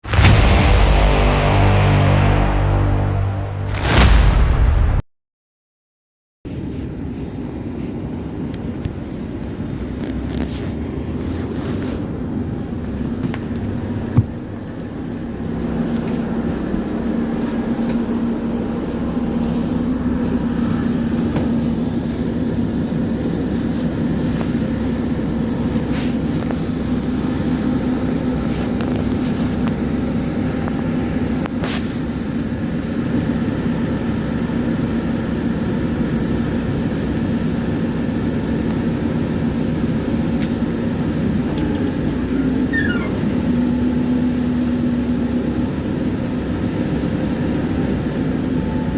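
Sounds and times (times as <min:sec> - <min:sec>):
sharp knock: 0:00.0 - 0:05.0
tram rumbling: 0:06.5 - 0:48.9.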